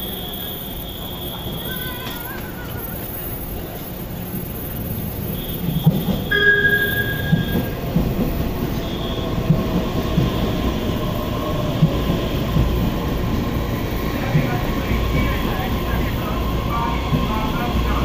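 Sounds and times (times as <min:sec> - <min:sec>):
high squealing tones: 0:04.3 - 0:07.8
train wheels clacking over rail joints: 0:05.7 - 0:11.0.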